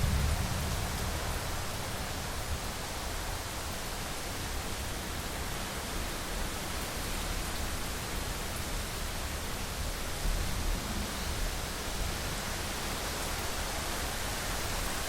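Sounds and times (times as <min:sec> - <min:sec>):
heavy rain on a window: 0:00.0 - 0:15.0.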